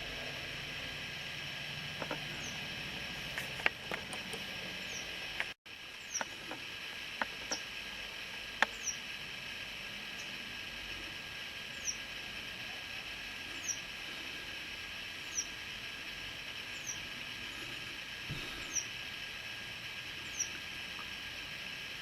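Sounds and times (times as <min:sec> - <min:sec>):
steady hiss: 0:00.0 - 0:22.0
nestling birds peeping: 0:01.8 - 0:07.7, 0:08.6 - 0:09.2, 0:11.6 - 0:12.2, 0:13.3 - 0:19.1, 0:20.0 - 0:21.3.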